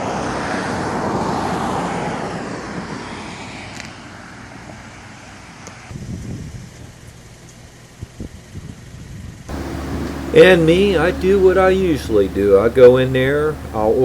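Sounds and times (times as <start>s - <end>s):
vehicle passing by: 9.5s - 14.0s.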